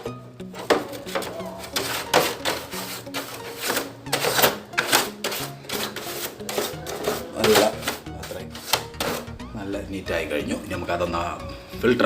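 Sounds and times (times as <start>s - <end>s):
music playing: 0.0s - 12.0s
brush scrubbing filter mesh: 1.1s - 9.3s.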